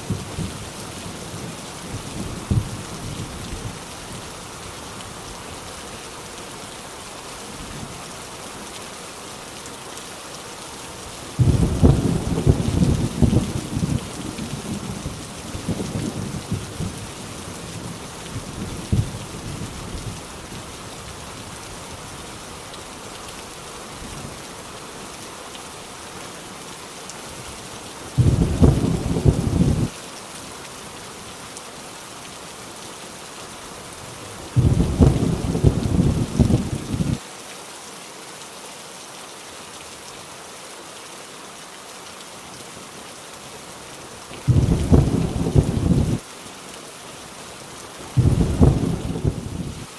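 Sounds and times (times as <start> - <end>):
heavy rain on a tin roof: 0.0 - 49.9
thunder rumbling: 1.4 - 3.8, 11.4 - 17.1, 28.2 - 29.9, 34.6 - 37.2, 44.5 - 46.2, 48.2 - 49.9.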